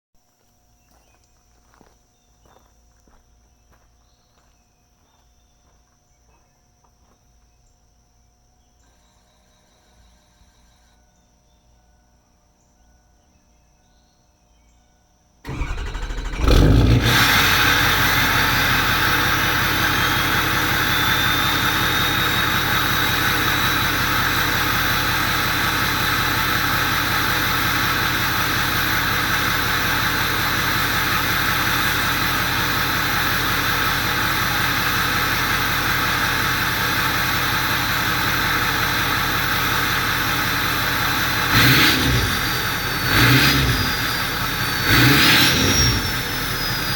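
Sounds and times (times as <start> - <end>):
faint crickets: 0.2 - 16.2
diesel engine running: 15.4 - 46.9
turbo whistle: 19.9 - 24.0.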